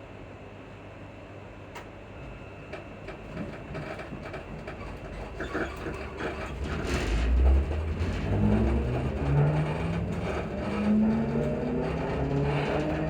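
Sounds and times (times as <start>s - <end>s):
train rumble: 2.7s - 13.0s
suspension clicks and squeaks: 3.8s - 13.0s
traction motor hum rising: 7.4s - 13.0s.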